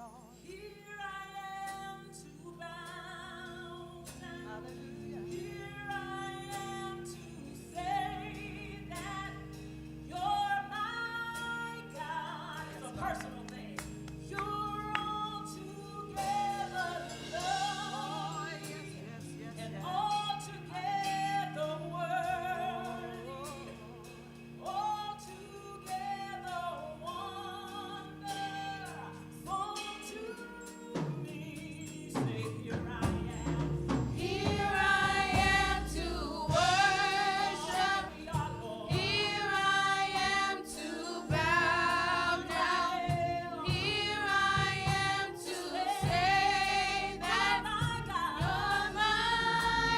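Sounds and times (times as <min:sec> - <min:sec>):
congregation singing worship song: 0:00.0 - 0:49.9
low bass notes: 0:32.7 - 0:40.3, 0:46.0 - 0:49.9.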